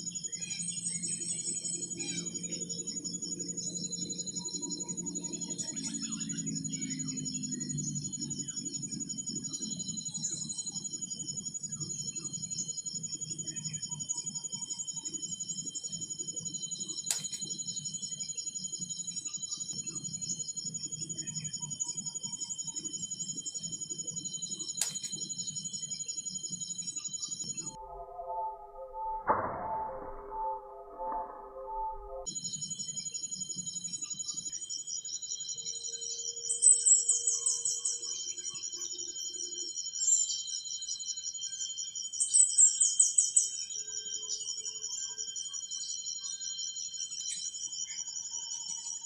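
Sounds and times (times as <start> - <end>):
insect chorus trilling: 0.0 - 27.8, 32.2 - 49.0
sharp clicks: 17.0 - 17.6, 24.8 - 25.3.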